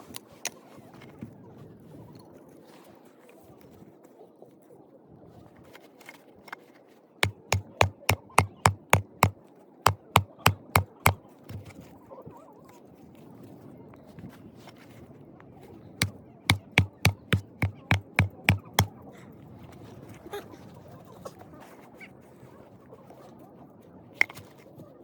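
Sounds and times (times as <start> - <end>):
sharp knocks: 7.2 - 9.3, 9.9 - 11.7, 16.5 - 18.9.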